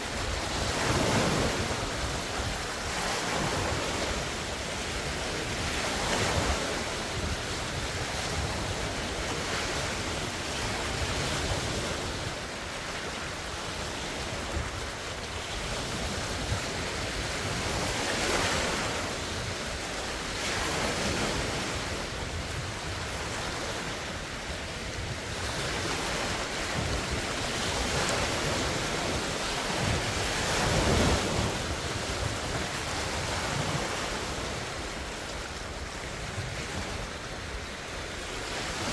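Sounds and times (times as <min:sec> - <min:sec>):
lake waves breaking ashore: 0:00.0 - 0:38.9
wind buffeting microphone: 0:00.0 - 0:38.9.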